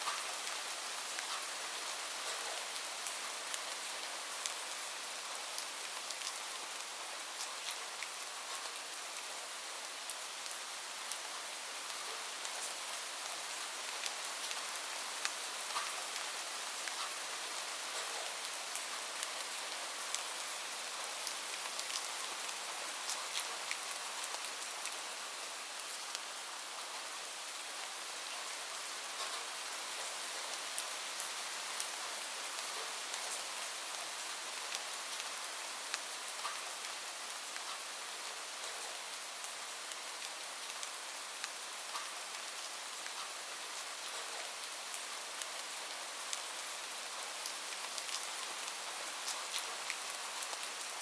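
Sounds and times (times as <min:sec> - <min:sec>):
raindrops ticking on surface: 0:00.0 - 0:03.8, 0:13.9 - 0:25.0, 0:28.2 - 0:32.0, 0:32.6 - 0:51.0
steady rain hiss: 0:00.0 - 0:51.0.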